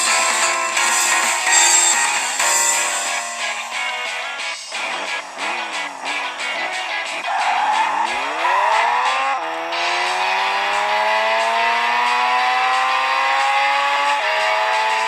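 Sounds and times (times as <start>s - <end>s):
car engine accelerating: 3.7s - 15.0s.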